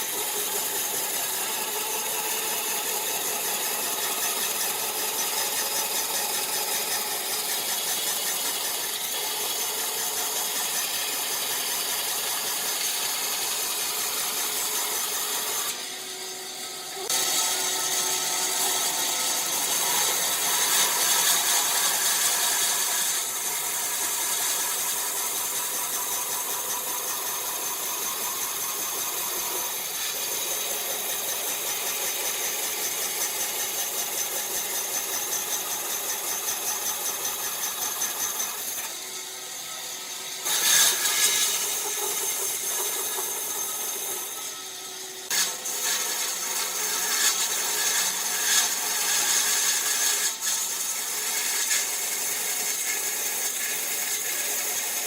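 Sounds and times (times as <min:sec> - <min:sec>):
power tools cutting wood: 0:00.0 - 0:55.0.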